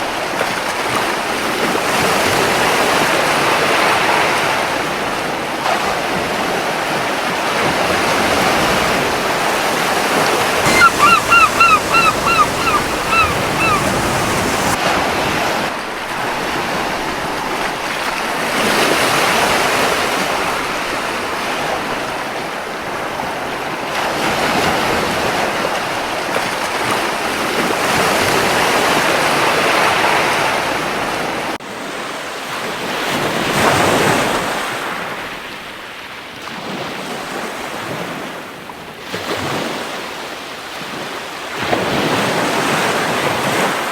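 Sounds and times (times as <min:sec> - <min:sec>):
sea waves washing onto beach: 0:08.4 - 0:14.8
seagull short calls: 0:10.6 - 0:14.8.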